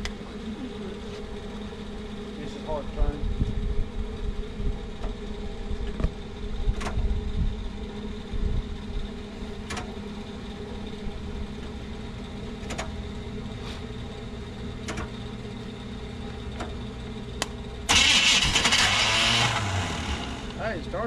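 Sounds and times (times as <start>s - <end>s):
steady low hum: 0.0s - 21.0s
starter whirring grind: 17.4s - 20.8s.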